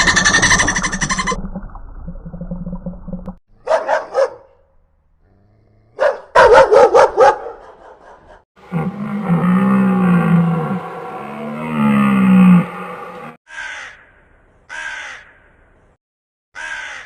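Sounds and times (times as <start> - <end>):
dog barking: 3.6 - 4.6, 6.0 - 8.4
low wavering animal call: 8.6 - 13.4.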